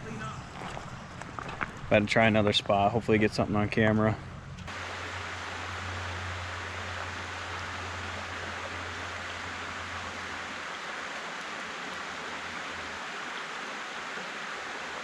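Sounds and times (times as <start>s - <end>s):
river water rushing: 4.7s - 15.0s.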